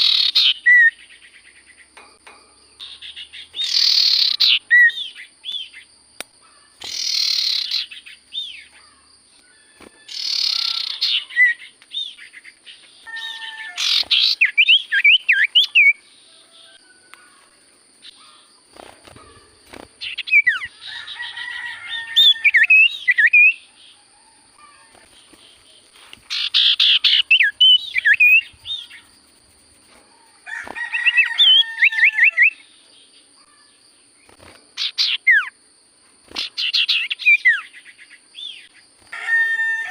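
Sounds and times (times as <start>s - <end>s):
bird singing whistled trills: 0.0s - 1.8s, 2.8s - 5.9s, 6.8s - 8.8s, 10.0s - 16.0s, 22.2s - 23.7s, 26.3s - 29.2s, 34.8s - 35.5s, 36.4s - 38.7s.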